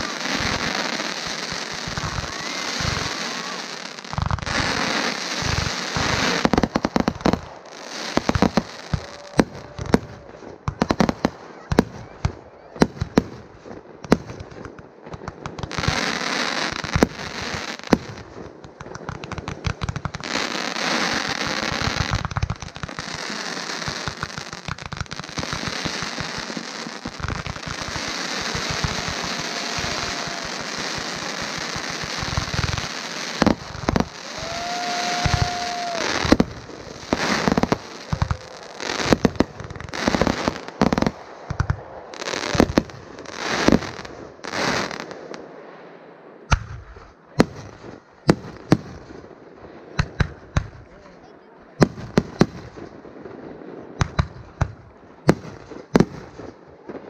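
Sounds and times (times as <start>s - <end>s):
fireworks whistle: 0.0s - 13.2s, 25.4s - 45.1s
fireworks bursts and bangs: 0.0s - 45.8s, 46.4s - 57.0s
fireworks crackling: 0.0s - 51.2s, 51.8s - 57.0s.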